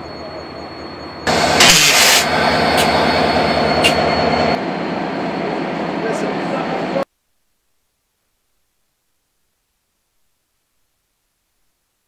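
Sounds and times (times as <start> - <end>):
train engine humming: 0.0 - 7.1.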